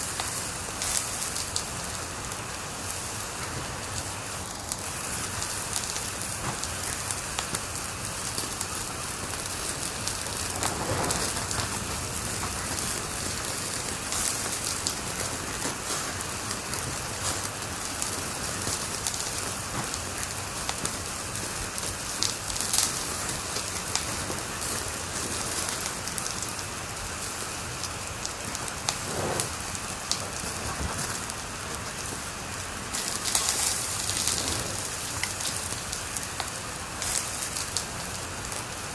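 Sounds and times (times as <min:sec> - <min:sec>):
fireplace fire crackling: 0:00.0 - 0:38.9
soft fire hiss: 0:00.0 - 0:38.9.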